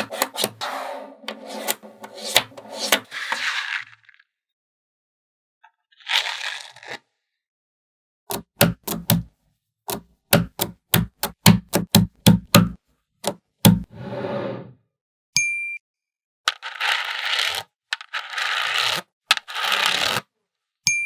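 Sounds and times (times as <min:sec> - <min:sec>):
balls scraping and rolling: 0:00.0 - 0:04.2, 0:13.7 - 0:14.8, 0:16.5 - 0:20.2.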